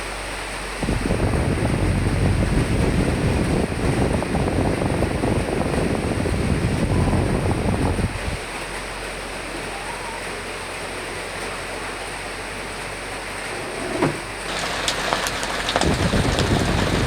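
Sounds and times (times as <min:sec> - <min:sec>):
steady rain hiss: 0:00.0 - 0:17.0
gusty wind: 0:00.8 - 0:08.5, 0:14.4 - 0:17.0.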